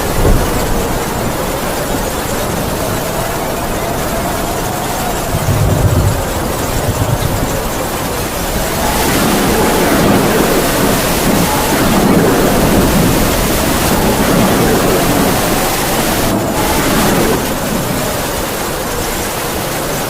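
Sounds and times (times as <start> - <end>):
heavy rain: 0.0 - 20.0
wind howling and whistling: 0.0 - 20.0.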